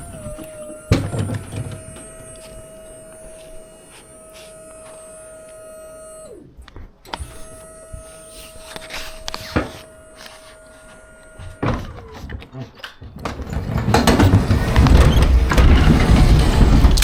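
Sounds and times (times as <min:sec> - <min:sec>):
small electric motor whining: 0:00.0 - 0:13.0.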